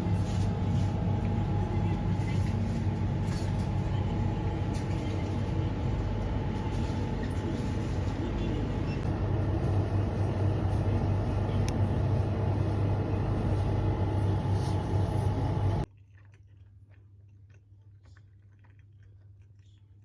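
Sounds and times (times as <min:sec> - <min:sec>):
moving vehicle rumble: 0:00.0 - 0:15.9
strong low hum: 0:00.0 - 0:15.9.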